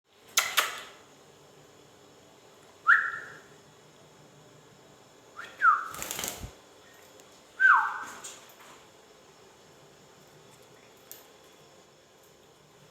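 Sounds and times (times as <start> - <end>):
parrot whistling: 2.8 - 3.5, 5.4 - 5.9, 7.6 - 8.1.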